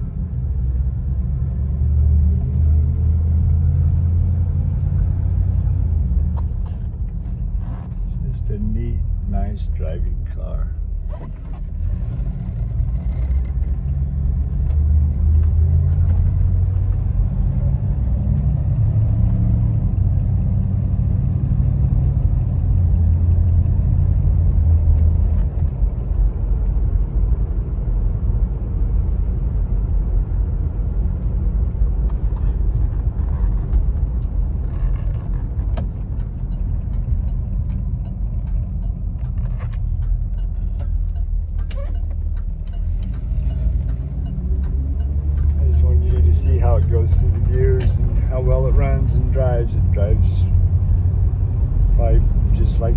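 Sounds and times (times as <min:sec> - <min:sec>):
car engine running while driving: 0:00.0 - 0:52.9.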